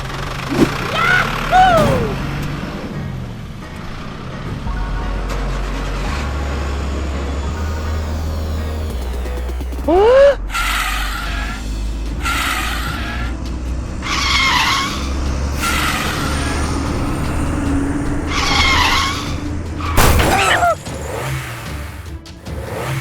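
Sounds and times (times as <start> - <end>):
cartoon engine rumble: 0.0 - 2.4
screeching skids: 0.0 - 2.5, 5.1 - 23.0
bang with falling tone: 1.6 - 2.3, 20.0 - 20.9.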